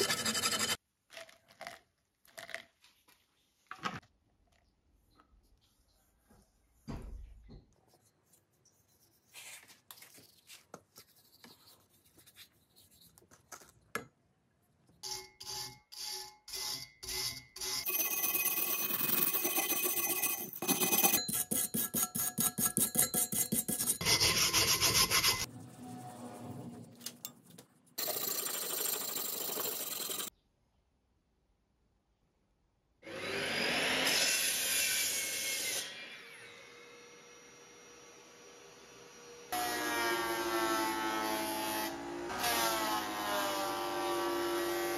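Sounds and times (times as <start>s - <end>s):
scraping rust off a knife: 0.0s - 0.8s, 18.8s - 25.5s.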